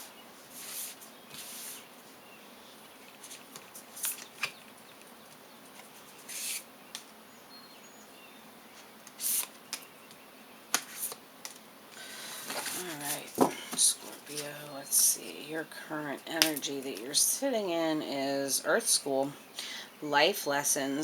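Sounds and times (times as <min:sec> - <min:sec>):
cards swishing: 0:06.0 - 0:06.6, 0:09.2 - 0:09.6.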